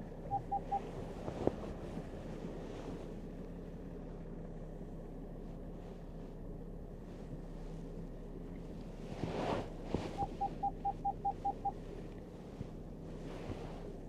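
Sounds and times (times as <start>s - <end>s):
car engine idling: 0.0s - 14.0s
short electronic beeps: 0.2s - 0.9s, 10.2s - 11.8s.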